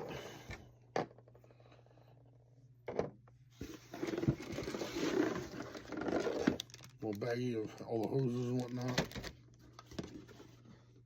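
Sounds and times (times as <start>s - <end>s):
plastic bag crinkling: 4.4s - 9.3s.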